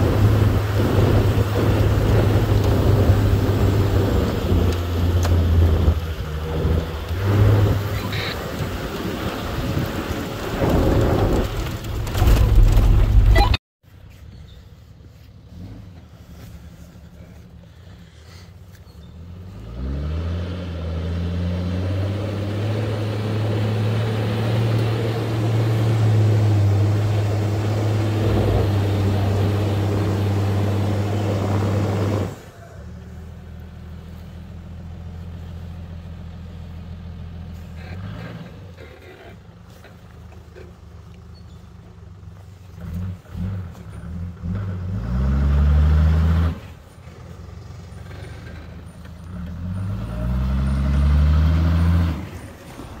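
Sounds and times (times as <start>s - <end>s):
car engine revving: 0.0s - 13.6s, 19.4s - 33.3s, 42.7s - 53.0s.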